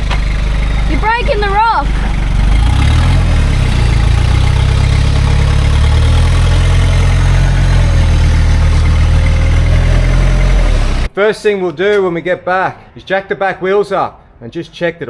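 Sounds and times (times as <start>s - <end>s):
diesel engine rumbling: 0.0s - 11.2s.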